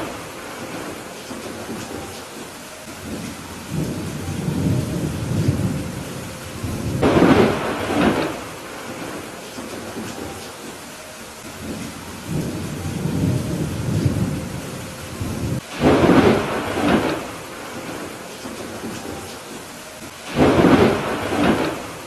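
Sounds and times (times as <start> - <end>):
rolling thunder: 0.0 - 10.8, 11.5 - 22.0
steady rain: 0.0 - 22.0
sharp thunder crack: 3.0 - 10.4, 15.2 - 19.5, 20.2 - 22.0.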